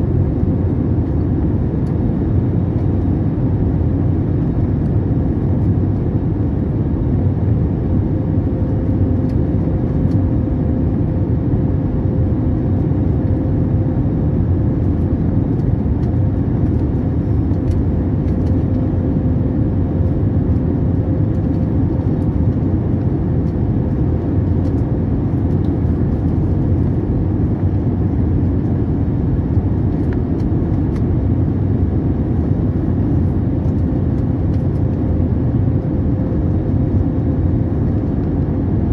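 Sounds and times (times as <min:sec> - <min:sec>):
airliner cabin drone: 0:00.0 - 0:38.9.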